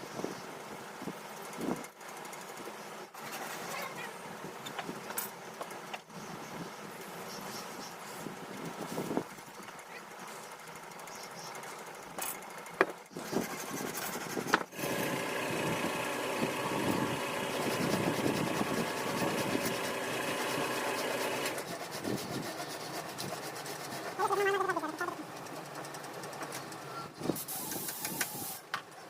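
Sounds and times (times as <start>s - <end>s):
small motor running: 8.7s - 28.6s.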